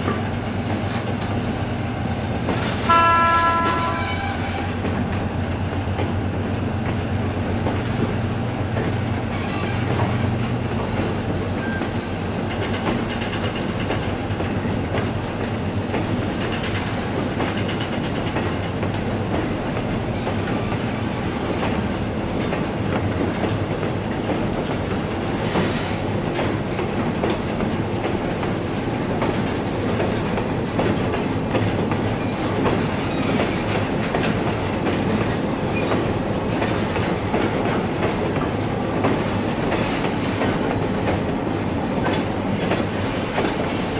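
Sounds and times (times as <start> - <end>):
cicada chorus: 0.0 - 43.9
faint wheel squeal: 3.8 - 4.9, 9.3 - 10.4, 11.6 - 12.1, 32.2 - 33.8.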